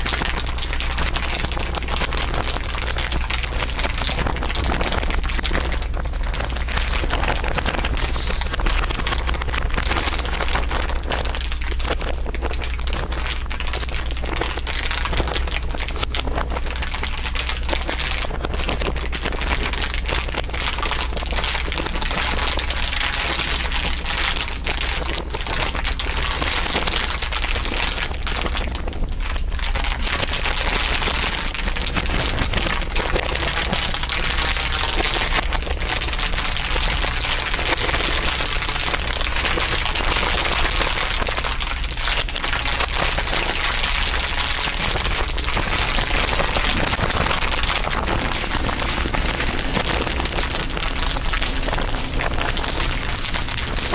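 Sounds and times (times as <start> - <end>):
low hum: 0.0 - 16.6, 30.6 - 53.9
dense crinkling crackles: 0.0 - 53.9.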